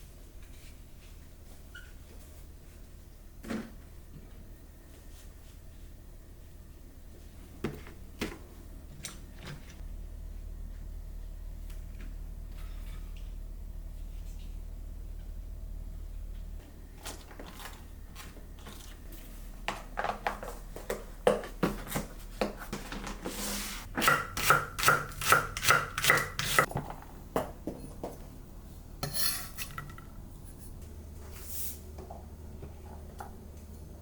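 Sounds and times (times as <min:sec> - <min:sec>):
knife chopping on cutting board: 0:24.0 - 0:26.7
knife scraping cutting board: 0:29.0 - 0:30.0.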